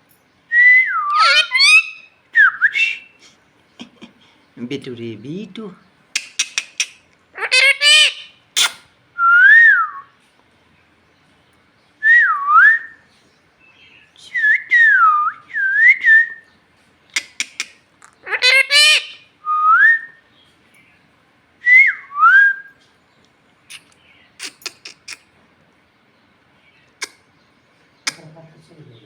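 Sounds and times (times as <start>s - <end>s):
parrot whistling: 0.6s - 3.2s, 6.2s - 10.1s, 18.3s - 20.1s
harsh rising parrot call: 1.0s - 2.1s, 6.3s - 8.8s.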